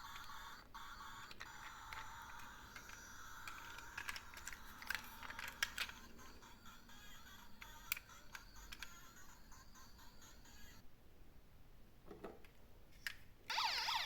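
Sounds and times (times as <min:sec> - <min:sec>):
toy truck plastic clicking and rattling: 0:00.0 - 0:10.8.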